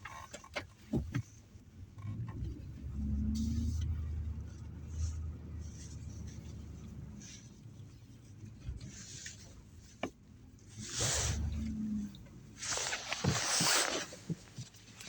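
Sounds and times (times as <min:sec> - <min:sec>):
vehicle engine rumble: 0:00.0 - 0:15.0
rustling handling noises: 0:12.2 - 0:15.0.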